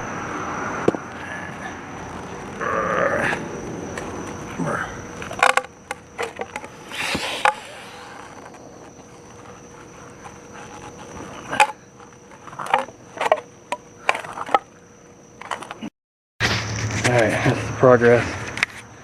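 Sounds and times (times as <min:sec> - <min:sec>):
shovel scraping concrete: 0:06.8 - 0:08.9.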